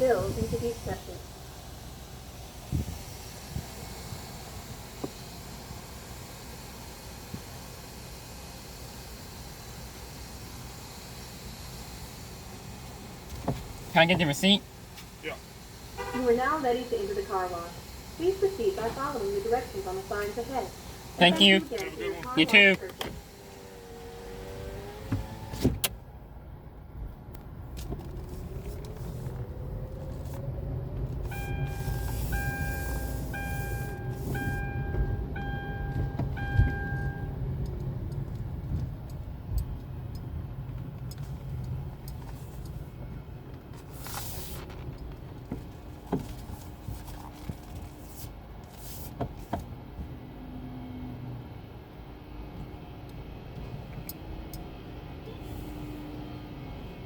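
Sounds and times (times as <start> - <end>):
car rumble inside cabin: 0.0 - 57.0
pitched beeps: 31.3 - 37.4.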